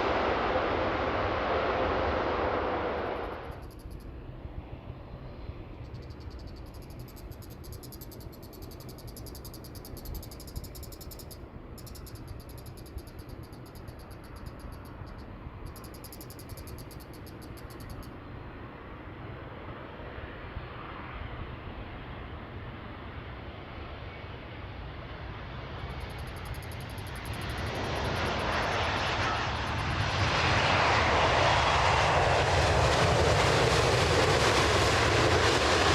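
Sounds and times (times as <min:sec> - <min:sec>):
jet airliner low rumble: 0:00.0 - 0:35.9
insects trilling: 0:05.8 - 0:18.1, 0:25.9 - 0:29.9.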